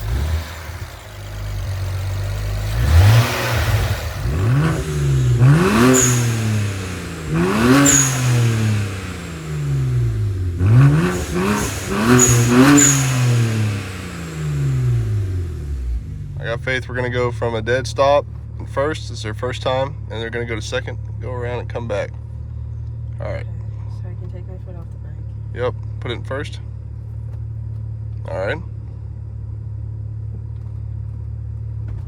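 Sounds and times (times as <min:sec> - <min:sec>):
car engine revving: 0:00.0 - 0:22.2.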